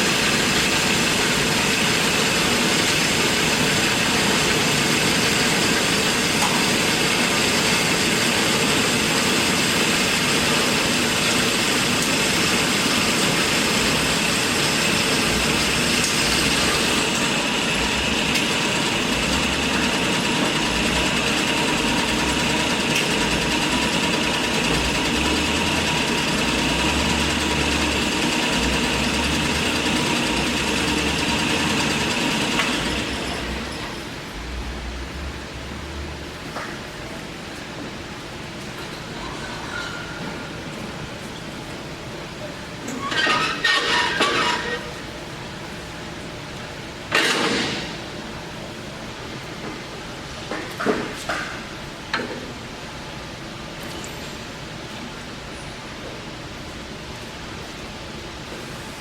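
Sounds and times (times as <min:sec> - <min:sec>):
band saw whining: 0:00.0 - 0:34.8.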